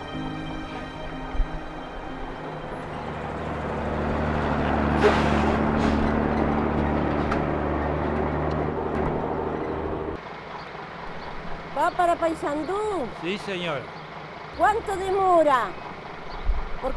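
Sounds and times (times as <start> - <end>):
bus engine rumble: 0.0 - 16.9
air brakes hissing: 5.0 - 6.1.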